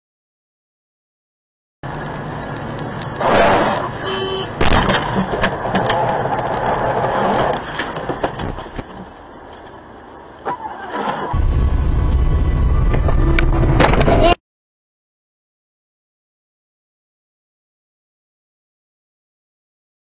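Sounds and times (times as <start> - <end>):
vehicle rumble: 1.8 - 14.4
vehicle crash: 3.2 - 4.0, 4.6 - 9.1, 10.4 - 14.4.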